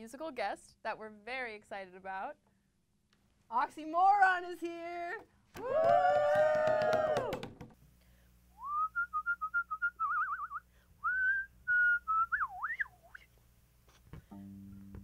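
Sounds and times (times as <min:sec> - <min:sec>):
person cheering: 0:05.6 - 0:07.6
person whistling a tune: 0:08.6 - 0:13.2.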